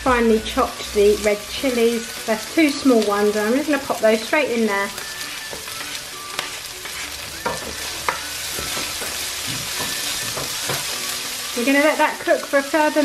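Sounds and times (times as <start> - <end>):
onions sizzling in a wok: 0.0 - 13.0
spatula scraping: 3.2 - 11.5.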